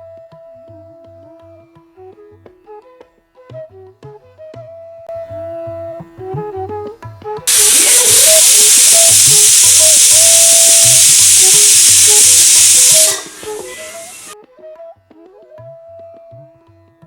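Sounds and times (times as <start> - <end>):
pressure cooker whistle hissing: 7.5 - 14.4.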